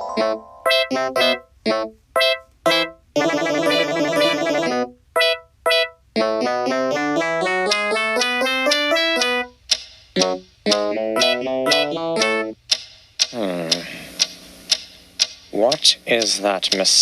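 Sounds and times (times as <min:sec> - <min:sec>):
electric piano music: 0:00.0 - 0:09.6, 0:10.2 - 0:12.6.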